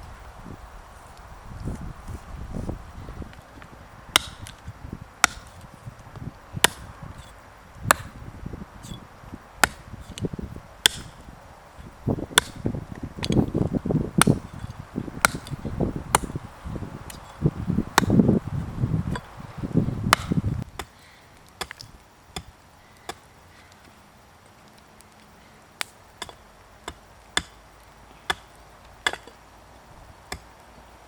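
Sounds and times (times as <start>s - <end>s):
blade chopping into wood: 4.2s - 5.7s, 6.6s - 8.2s, 9.6s - 11.2s, 12.3s - 16.4s, 17.1s - 18.3s, 20.1s - 20.9s, 28.3s - 29.4s.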